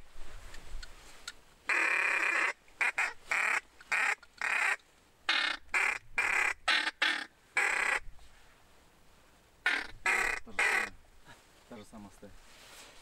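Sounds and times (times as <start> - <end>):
bird giving harsh calls: 1.7 - 8.0, 9.6 - 11.0.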